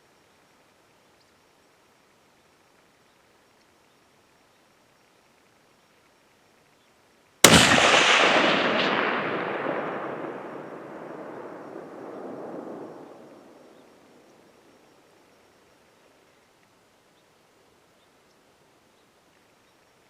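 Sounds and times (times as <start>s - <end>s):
rifle shot echoing: 7.4s - 13.9s.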